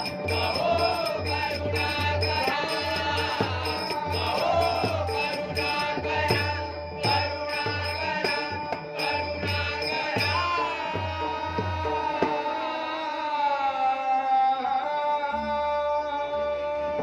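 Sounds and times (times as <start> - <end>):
steady drum beat: 0.0 - 13.1
person singing: 0.0 - 17.0.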